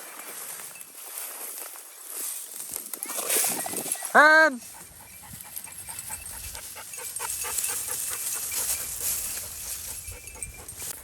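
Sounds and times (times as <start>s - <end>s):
dog panting: 4.6s - 11.0s.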